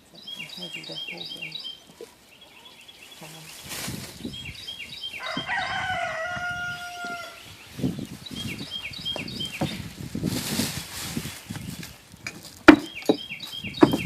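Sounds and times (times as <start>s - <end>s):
bird chirping high: 0.0s - 10.0s, 12.8s - 14.0s
rooster crowing: 5.1s - 7.4s.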